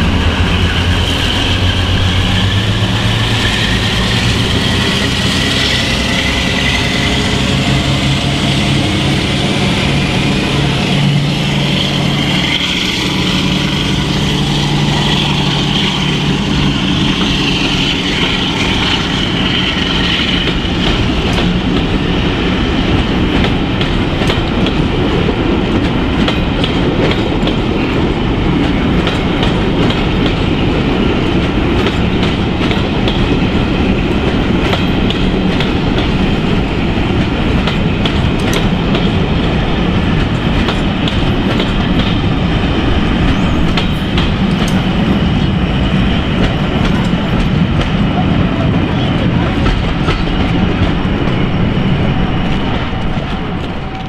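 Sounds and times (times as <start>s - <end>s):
train wheels rumbling on rails: 0.0s - 54.0s
wheels clicking over rail joints: 22.8s - 51.6s.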